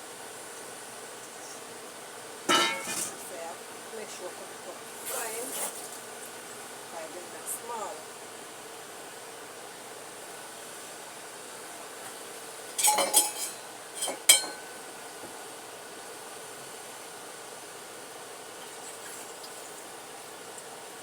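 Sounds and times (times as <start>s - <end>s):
steady low hiss: 0.0s - 21.0s
utensils clinking against dishes: 2.5s - 3.2s, 12.8s - 14.8s.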